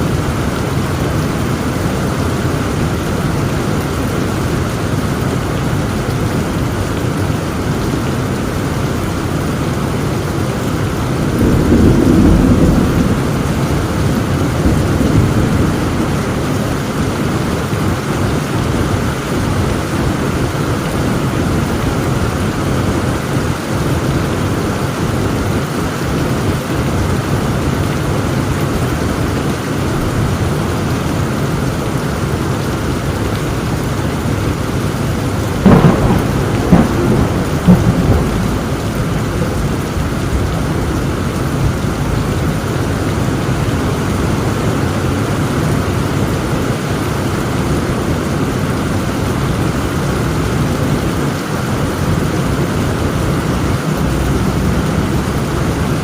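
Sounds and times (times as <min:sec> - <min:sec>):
heavy rain falling: 0:00.0 - 0:56.0
low roll of thunder: 0:11.1 - 0:19.2, 0:34.5 - 0:43.0.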